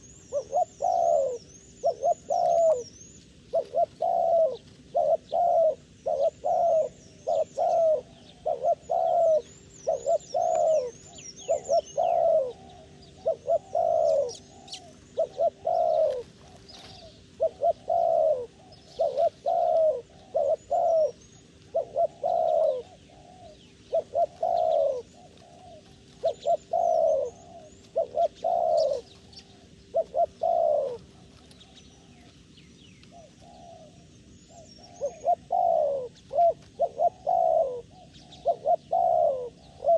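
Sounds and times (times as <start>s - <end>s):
doves cooing: 0.0s - 39.9s
small birds chirping: 0.0s - 39.9s.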